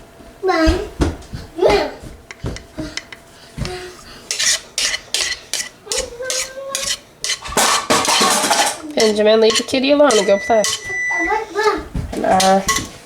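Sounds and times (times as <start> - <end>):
utensil scraping batter in bowl: 3.0 - 13.0.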